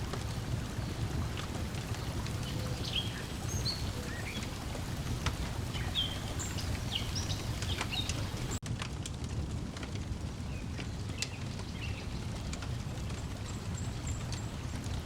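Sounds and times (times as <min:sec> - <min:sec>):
birds chirping: 0:00.0 - 0:08.6
lapping water: 0:00.0 - 0:08.6
wood fire crackling: 0:00.0 - 0:15.0.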